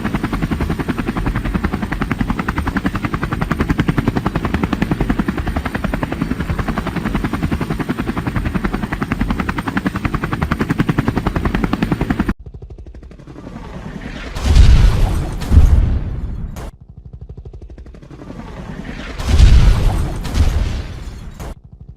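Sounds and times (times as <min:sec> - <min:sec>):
helicopter rotor blades chopping: 0:00.0 - 0:21.9.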